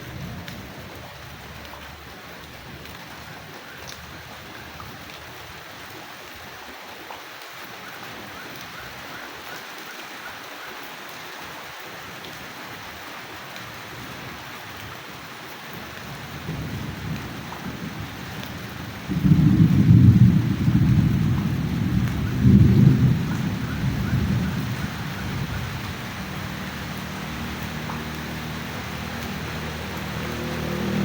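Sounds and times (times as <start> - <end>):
steady rain falling: 0.0 - 31.0
thunder rumble: 16.3 - 26.4
loud thunderclap: 19.1 - 24.7.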